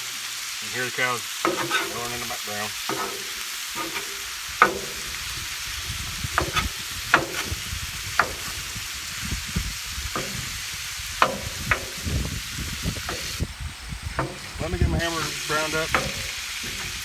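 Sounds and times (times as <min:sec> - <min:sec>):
meat sizzling on a griddle: 0:00.0 - 0:17.0
spatula clacking on griddle: 0:01.3 - 0:13.4, 0:14.1 - 0:17.0.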